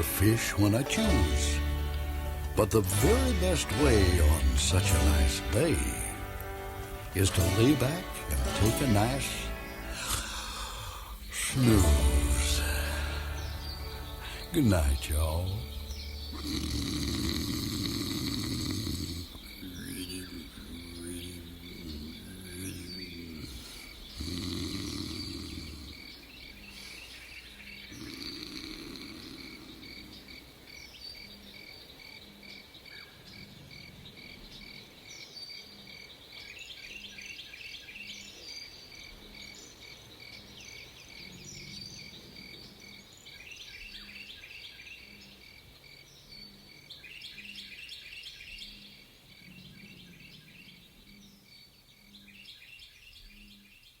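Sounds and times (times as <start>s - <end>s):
birds twittering and calling: 0.0s - 54.0s
crickets chirping: 9.3s - 52.5s
low snore: 16.3s - 19.8s, 21.9s - 26.1s, 28.0s - 30.2s.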